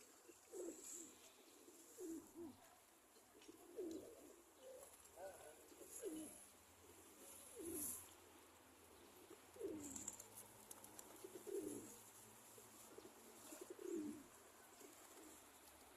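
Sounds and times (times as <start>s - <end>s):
pigeons cooing: 0.0s - 15.9s.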